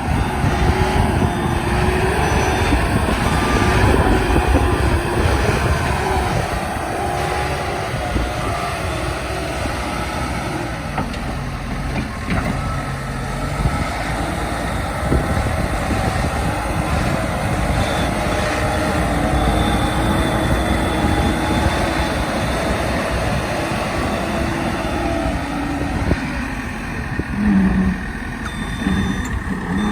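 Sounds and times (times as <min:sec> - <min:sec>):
backhoe loader engine running: 0:00.0 - 0:29.9
wavering whine: 0:00.0 - 0:29.9.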